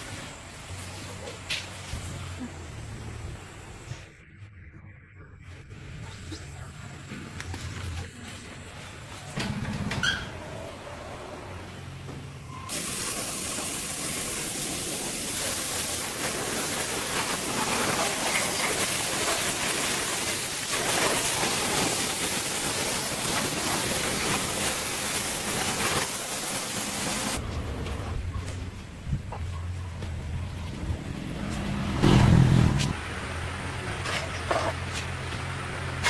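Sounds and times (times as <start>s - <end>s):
steady hiss: 12.7s - 27.4s.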